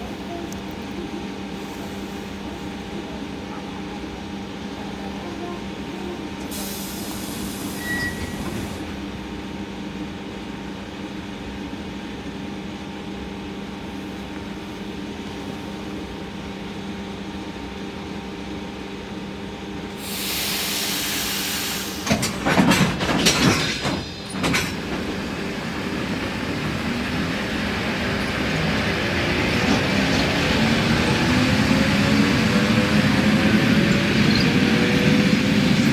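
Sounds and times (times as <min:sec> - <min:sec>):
air hissing: 0:06.5 - 0:08.3, 0:20.0 - 0:22.4
rolling train wheels: 0:20.0 - 0:35.9
loud clattering: 0:22.1 - 0:25.8.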